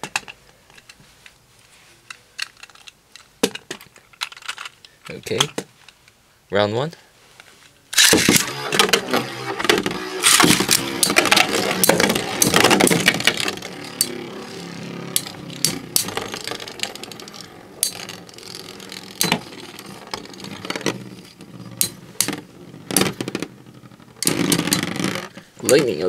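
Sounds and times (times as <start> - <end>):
spinning tops clacking together: 8.0 - 23.2
spinning tops whirring and scraping: 8.0 - 25.4.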